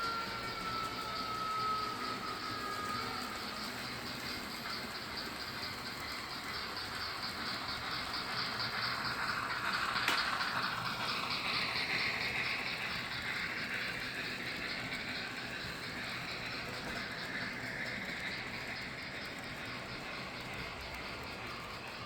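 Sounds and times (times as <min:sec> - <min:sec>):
model train running on track: 0:00.0 - 0:22.0.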